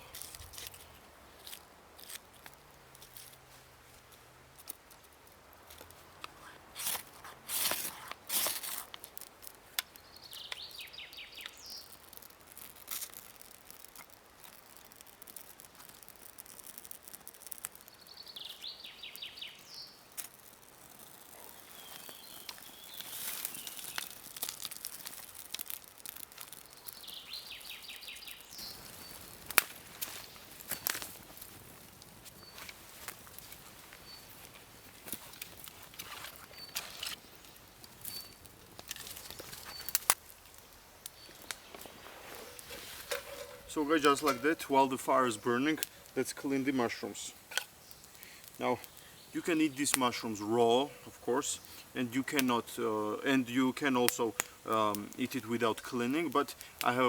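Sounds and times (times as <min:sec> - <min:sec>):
ferro rod scrapes and crackles: 0:00.0 - 0:49.2, 0:49.8 - 0:57.0
songbird trilling: 0:10.1 - 0:11.9.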